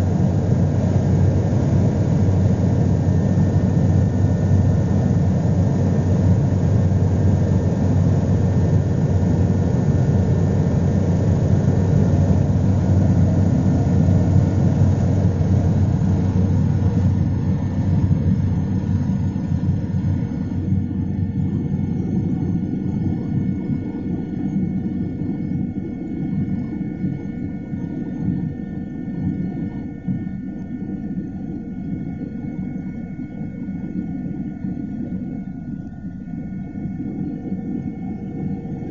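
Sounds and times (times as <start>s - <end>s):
helicopter engine and rotor rumble: 0.0s - 29.1s.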